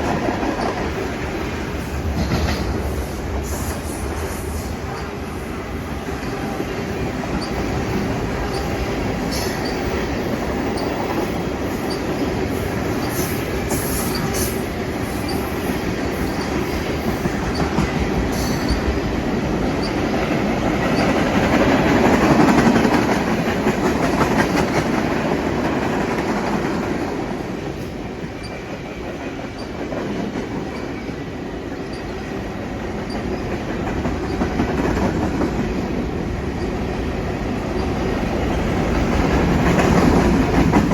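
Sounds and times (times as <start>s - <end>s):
train wheels clicking over rail joints: 0.0s - 40.9s
high wheel squeals: 7.4s - 10.1s.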